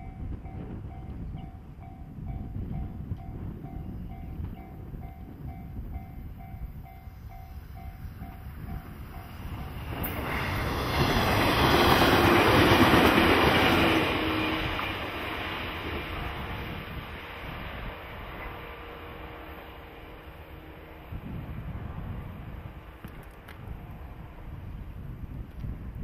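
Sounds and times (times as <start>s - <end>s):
train passing on rails: 0.0s - 26.0s.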